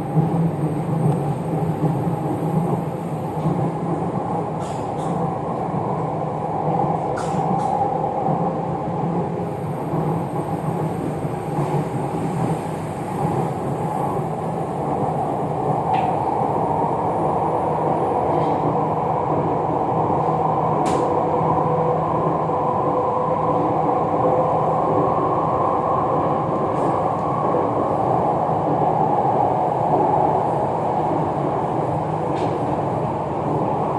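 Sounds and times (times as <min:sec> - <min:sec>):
train wheels and motors rumbling: 0:00.0 - 0:21.5.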